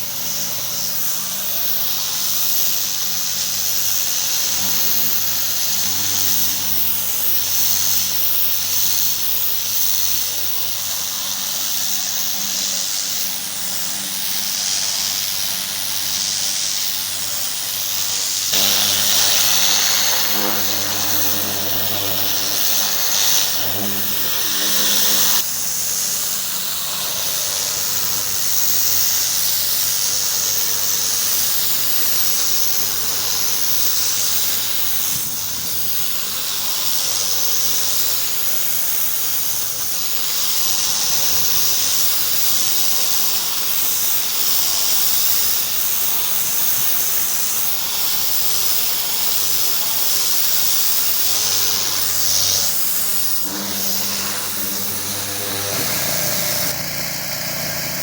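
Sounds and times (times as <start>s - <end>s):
pressure washer spraying: 0.0s - 58.0s
motor hum: 17.0s - 29.1s, 50.4s - 58.0s.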